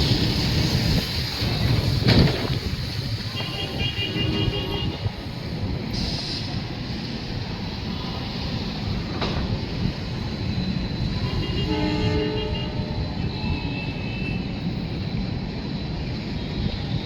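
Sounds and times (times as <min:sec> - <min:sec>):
train rumbling: 0:00.0 - 0:17.0
train horn: 0:03.3 - 0:05.2, 0:11.2 - 0:14.5.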